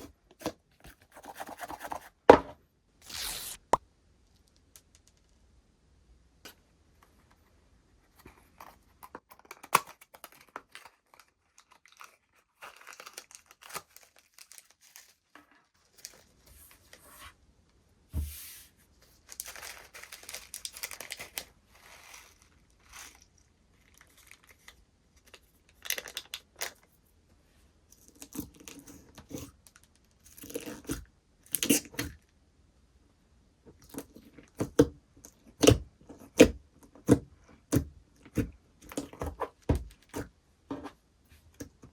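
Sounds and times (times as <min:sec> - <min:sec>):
slime crackling and stretching: 0:03.0 - 0:03.8.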